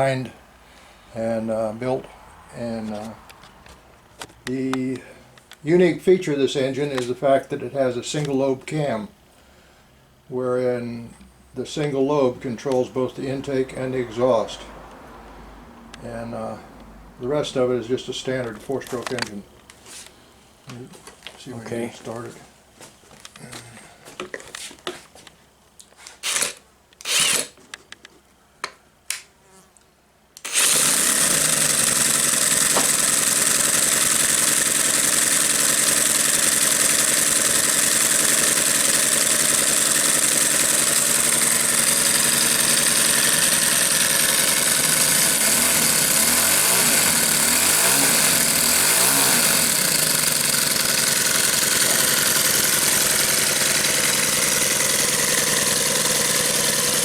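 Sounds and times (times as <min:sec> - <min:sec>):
model engine starting and running: 0:26.2 - 0:27.6, 0:30.4 - 0:57.0.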